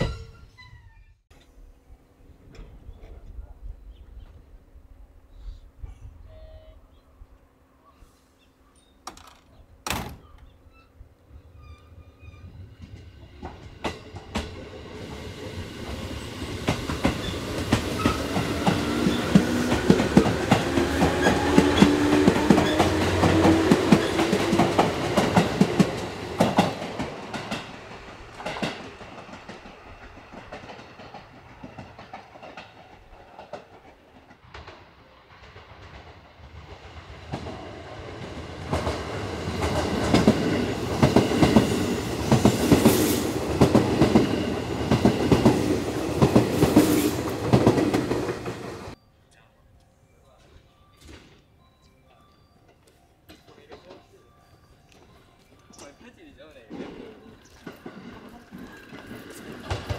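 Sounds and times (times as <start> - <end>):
train wheels clacking: 12.8 - 49.0, 52.6 - 59.9.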